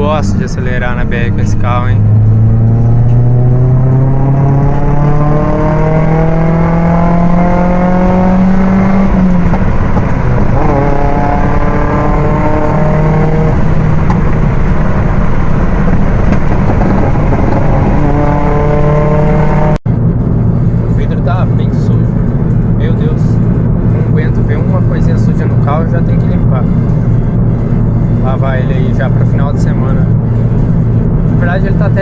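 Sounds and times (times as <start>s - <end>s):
car engine accelerating hard: 0.0s - 32.0s
heavy road noise: 0.0s - 32.0s.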